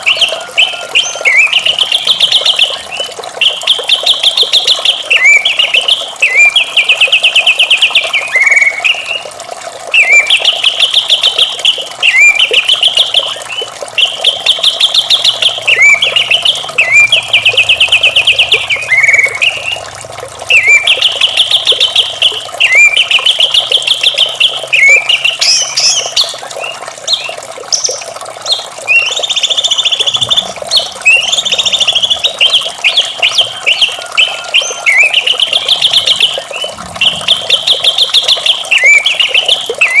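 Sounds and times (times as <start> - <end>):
running water: 0.0 - 40.0
bird singing pulsed notes: 14.0 - 19.8, 20.5 - 26.1, 28.9 - 40.0.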